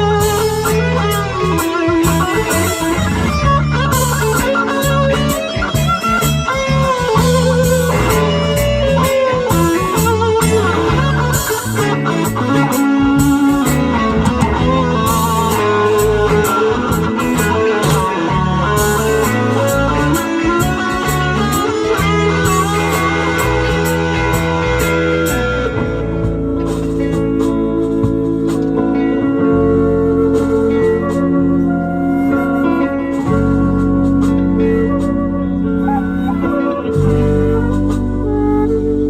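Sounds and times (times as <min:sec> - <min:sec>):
bass guitar line: 0:00.0 - 0:39.0
electric guitar sliding melody: 0:00.0 - 0:39.0.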